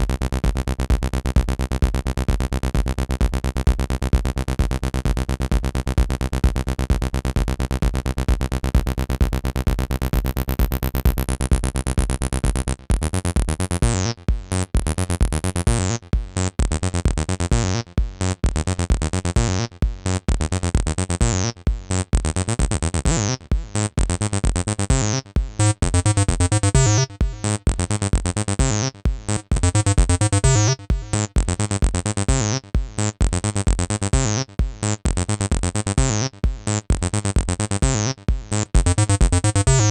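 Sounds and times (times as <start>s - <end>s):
steady synth bass: 0.0s - 39.9s
fast repeating synth sequence: 25.5s - 28.0s, 28.7s - 33.0s, 37.8s - 39.9s.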